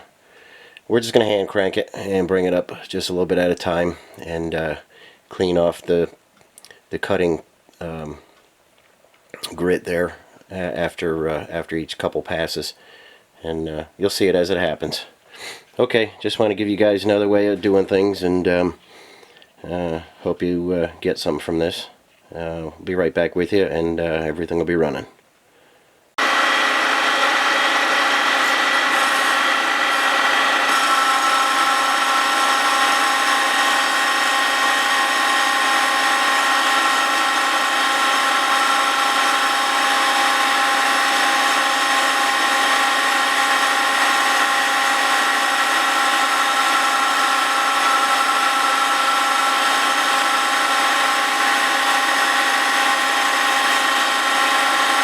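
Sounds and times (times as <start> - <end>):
grinding machine whine: 26.2 - 55.0.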